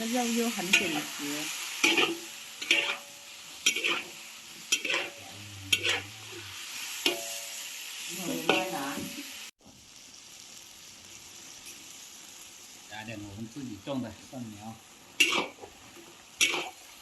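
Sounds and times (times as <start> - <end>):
meat and mushrooms sizzling in a pan: 0.0 - 17.0
metal spatula scraping a pan: 0.5 - 7.6, 8.2 - 9.1, 15.2 - 16.9.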